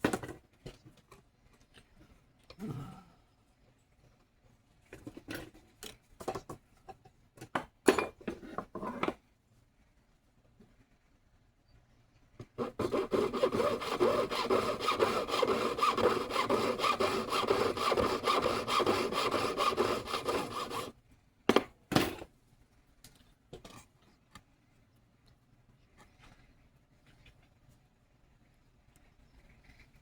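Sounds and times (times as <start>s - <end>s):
saw cutting metal: 12.6s - 20.9s.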